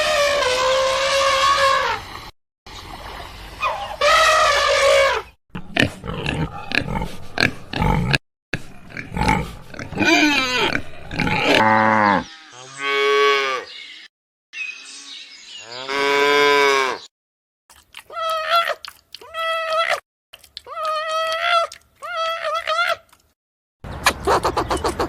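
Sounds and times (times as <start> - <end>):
cattle mooing: 9.1 - 13.6.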